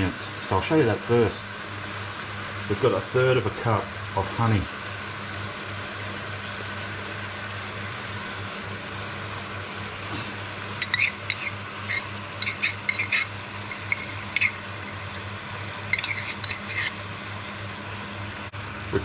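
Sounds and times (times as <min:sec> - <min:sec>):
chicken frying in a pan: 0:00.0 - 0:19.0
oil crackling and spitting: 0:10.0 - 0:17.0.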